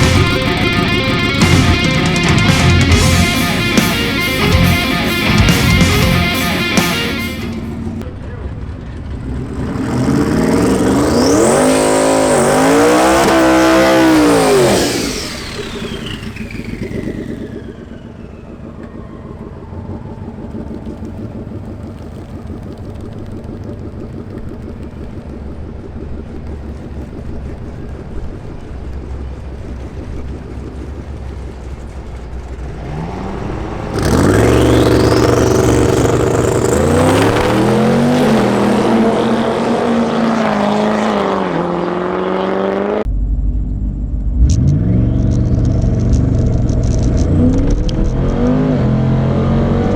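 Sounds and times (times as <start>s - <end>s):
long falling whine: 0.0s - 8.0s, 10.8s - 21.2s, 33.2s - 41.6s
drag car accelerating hard: 0.0s - 43.1s, 44.2s - 49.9s
low steady engine sound: 7.2s - 10.2s, 14.8s - 39.9s, 43.0s - 48.1s.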